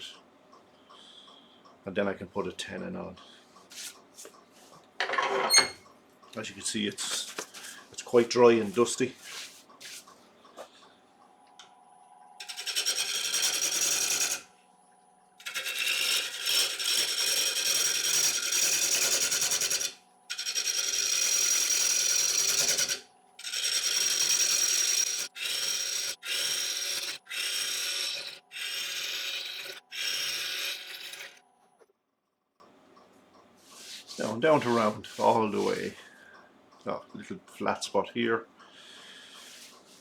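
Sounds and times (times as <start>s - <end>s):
gouge cutting wood on lathe: 12.4s - 14.4s, 15.4s - 31.4s
lathe motor humming: 23.4s - 31.3s.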